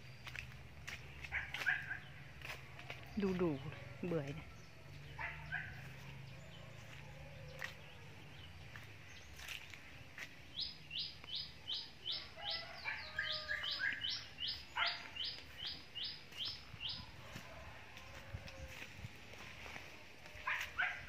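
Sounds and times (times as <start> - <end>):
bird chirping: 3.1 - 17.1.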